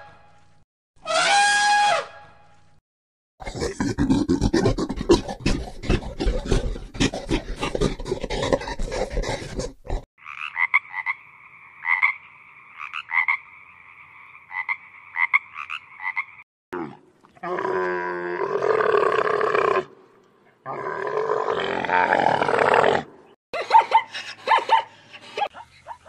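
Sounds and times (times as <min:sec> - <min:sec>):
frog croaking: 0:10.2 - 0:16.4.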